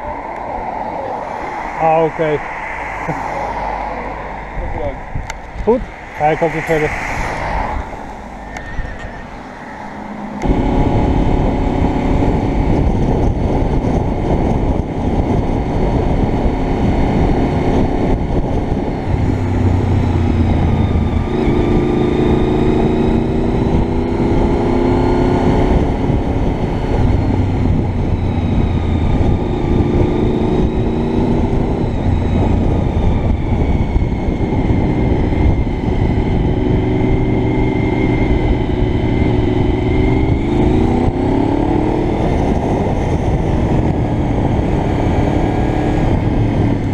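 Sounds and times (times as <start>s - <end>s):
wind rush on helmet: 0.0s - 46.9s
motorcycle engine running: 10.4s - 18.6s.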